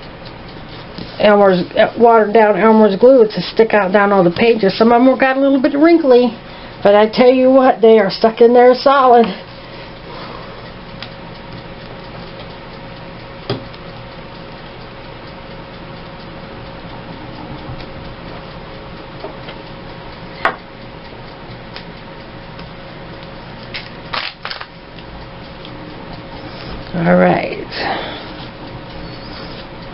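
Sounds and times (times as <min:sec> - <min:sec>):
faint hum: 0:00.0 - 0:29.9
sharp taps and clicks: 0:13.5 - 0:13.9.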